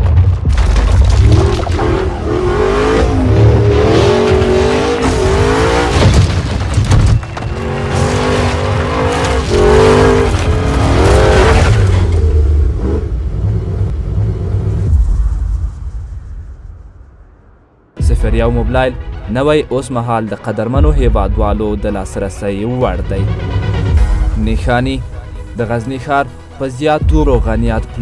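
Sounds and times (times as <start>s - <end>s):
car engine revving: 1.2s - 15.7s.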